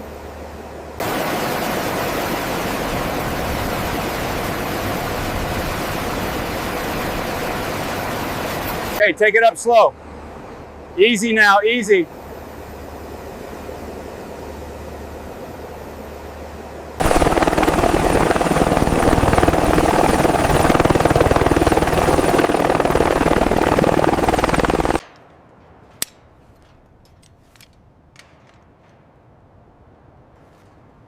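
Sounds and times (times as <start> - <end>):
helicopter rotor and engine: 1.0 - 9.0, 17.0 - 25.0.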